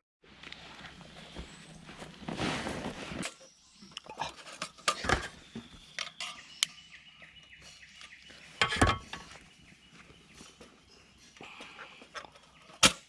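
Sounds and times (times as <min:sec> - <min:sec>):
faint bird chirps: 0:03.2 - 0:12.8.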